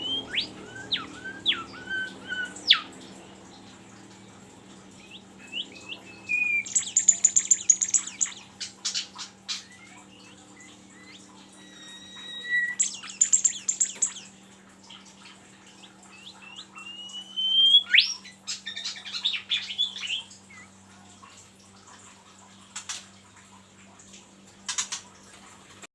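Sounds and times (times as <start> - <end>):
rising bird whistles: 0.0 - 2.9, 5.5 - 8.4, 10.6 - 14.3, 16.1 - 18.3
songbird chattering trills: 0.0 - 2.9, 5.0 - 20.7
faint steady hum: 0.0 - 25.9.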